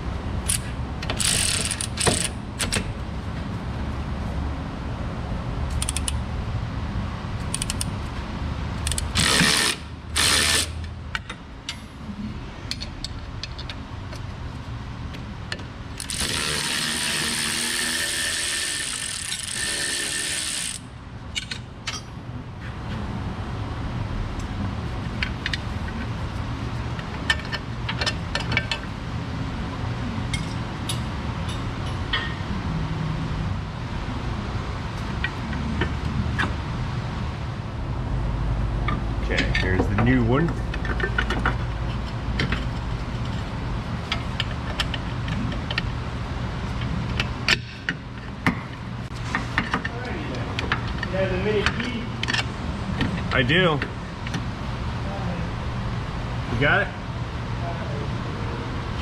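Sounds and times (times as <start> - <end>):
hand ratchet clicking: 0.5 - 2.8, 5.8 - 6.2, 7.5 - 7.9, 8.8 - 10.8, 16.0 - 20.8
air tool bursts: 16.0 - 20.8.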